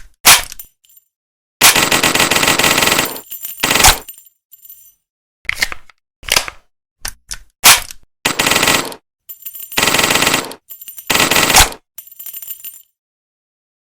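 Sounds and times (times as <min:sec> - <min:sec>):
submachine gun firing: 0:01.6 - 0:04.0, 0:08.3 - 0:09.0, 0:09.8 - 0:11.8.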